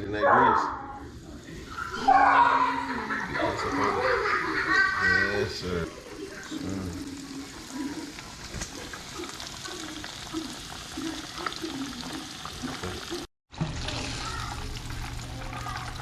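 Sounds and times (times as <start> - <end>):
fish frying in hot grease: 5.9 - 16.0.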